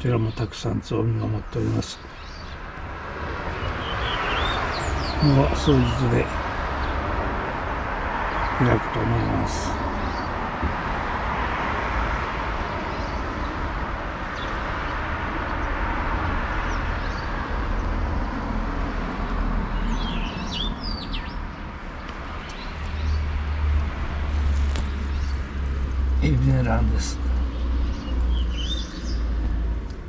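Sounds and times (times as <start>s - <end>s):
outdoor rumble and hiss: 0.0s - 16.4s, 21.4s - 28.0s
songbirds chirping: 0.0s - 30.0s.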